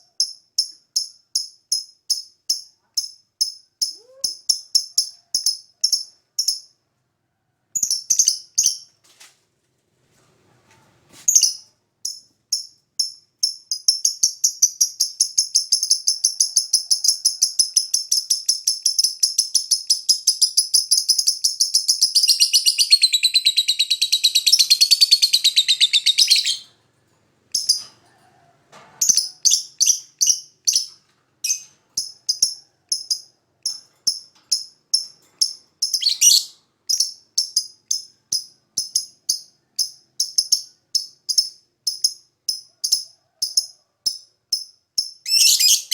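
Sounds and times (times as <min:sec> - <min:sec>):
lovebird chirping and trilling: 0:07.8 - 0:08.9, 0:11.3 - 0:26.8, 0:27.5 - 0:27.9, 0:29.0 - 0:42.2, 0:44.6 - 0:45.9.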